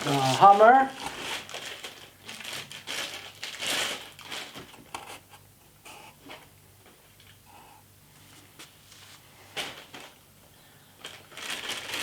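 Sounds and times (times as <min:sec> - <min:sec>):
plastic packaging crinkling: 0:00.0 - 0:04.9, 0:11.0 - 0:12.0.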